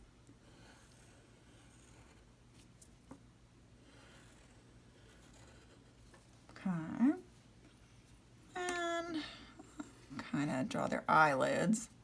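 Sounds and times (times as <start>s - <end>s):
drawing tool scratching paper: 0.4s - 2.3s, 3.8s - 6.2s.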